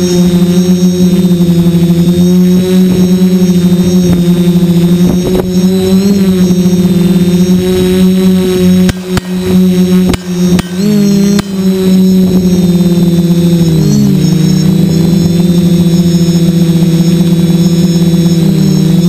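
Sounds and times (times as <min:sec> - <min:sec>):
drone propellers humming: 0:00.0 - 0:19.0
sharp clicks: 0:10.1 - 0:11.8.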